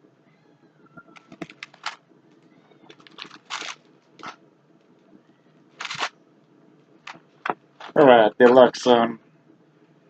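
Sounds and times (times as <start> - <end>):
plastic packaging crinkling: 1.1 - 2.0, 2.8 - 4.4, 5.8 - 6.1.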